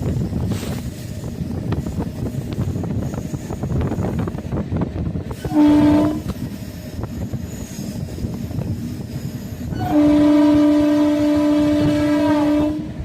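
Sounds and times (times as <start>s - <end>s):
moving train rumble and clatter: 0.0s - 13.0s
locomotive horn blast: 5.4s - 6.4s, 9.7s - 13.0s.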